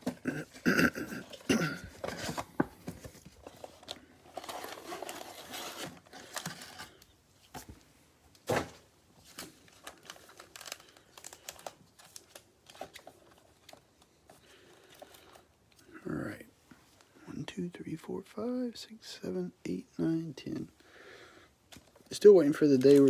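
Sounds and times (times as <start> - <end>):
card packs clicking and rustling: 0.0 - 7.7, 8.4 - 15.5, 21.7 - 23.0
plastic wrapping crinkling and tearing: 3.4 - 7.1, 9.2 - 15.4, 21.7 - 23.0.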